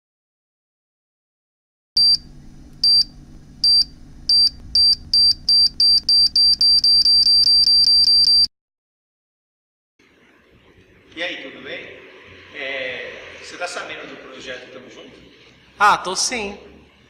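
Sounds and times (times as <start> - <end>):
low hum: 2.0 - 7.1
high-pitched electronic beeps: 2.8 - 8.5.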